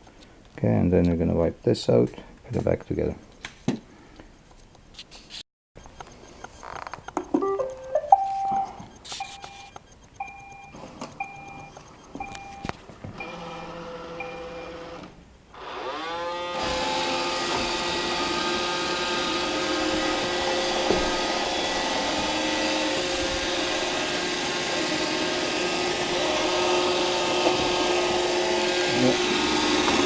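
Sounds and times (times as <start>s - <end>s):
electric motor whine: 13.1s - 30.0s.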